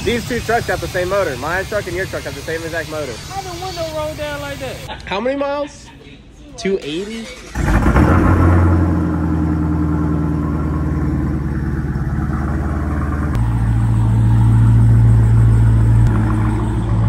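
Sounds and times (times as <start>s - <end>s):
car engine idling: 7.1s - 17.0s.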